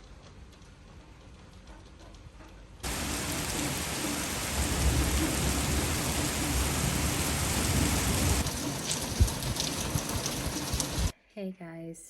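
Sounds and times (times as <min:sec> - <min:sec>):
heavy rain pouring: 0:02.8 - 0:11.1
thunder rumbling: 0:02.8 - 0:11.1.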